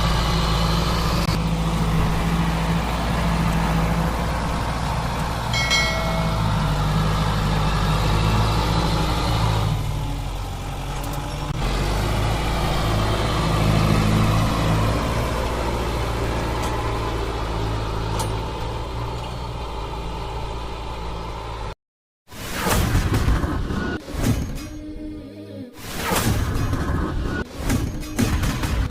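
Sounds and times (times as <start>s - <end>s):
tractor diesel engine running: 0.0s - 21.8s.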